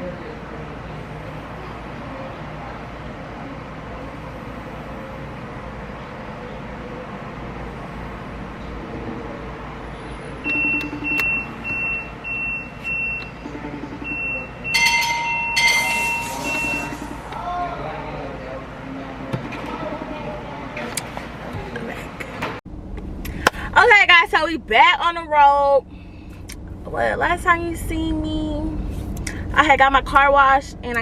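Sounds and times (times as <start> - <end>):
short high beeps: 10.4 - 17.4
steady tones: 10.5 - 17.5
car interior rumble: 21.0 - 31.0.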